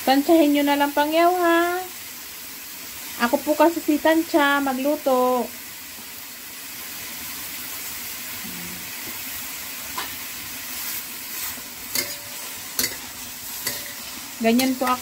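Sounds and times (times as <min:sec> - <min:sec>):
meat sizzling in a wok: 0:00.0 - 0:15.0
metal spatula clicking on wok: 0:11.9 - 0:15.0.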